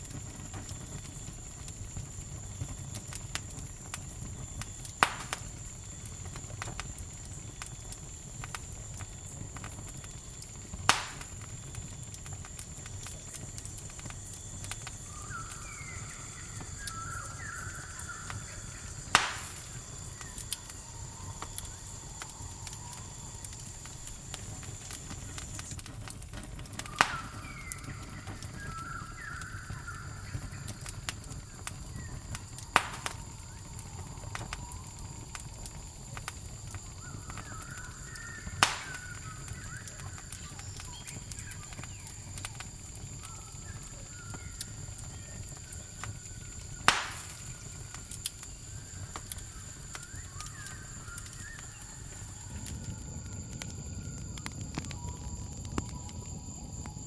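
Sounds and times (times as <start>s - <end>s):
campfire crackling: 0.0s - 57.0s
cricket trill: 0.0s - 57.0s
loud fire pops: 0.0s - 57.0s
bird chirping: 15.0s - 21.3s.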